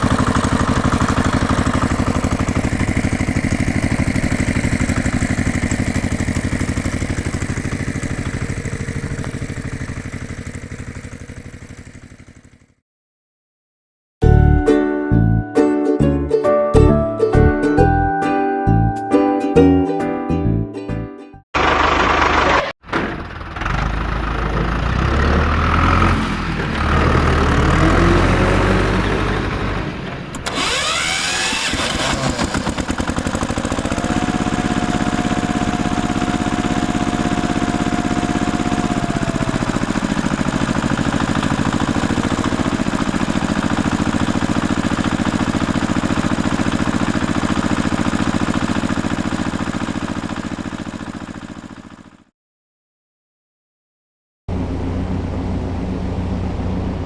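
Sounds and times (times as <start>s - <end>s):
small motor pulsing rattle: 0.0s - 12.7s, 21.6s - 52.2s.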